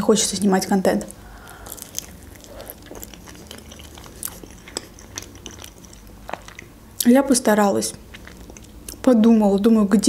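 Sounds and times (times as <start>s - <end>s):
close chewing mouth sounds: 1.0s - 7.1s, 7.8s - 9.4s.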